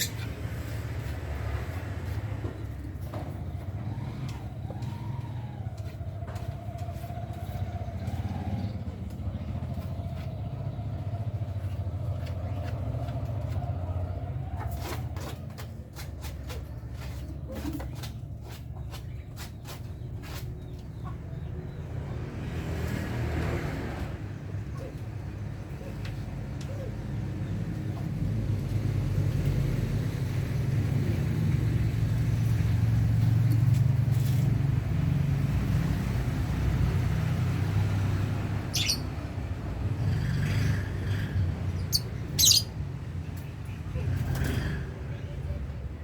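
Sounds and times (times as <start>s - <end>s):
lovebird calls: 0.0s - 0.5s, 38.6s - 39.2s, 40.2s - 42.8s
vehicle engine rumble: 0.0s - 46.0s.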